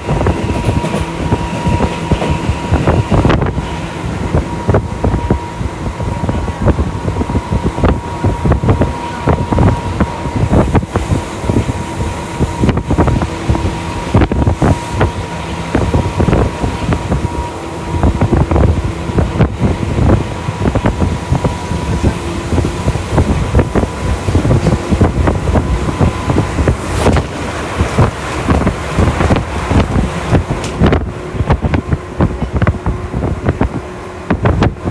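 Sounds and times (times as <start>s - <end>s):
train wheels rumbling on rail: 0.0s - 34.9s.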